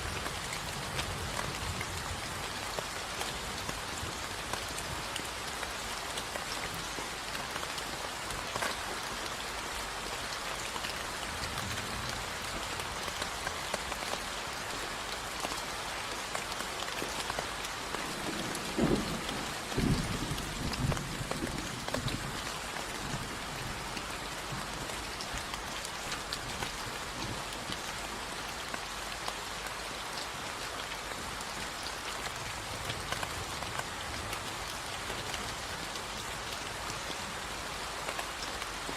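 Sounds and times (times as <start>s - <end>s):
rain pattering: 0.0s - 38.9s
low rumble of thunder: 18.0s - 23.9s.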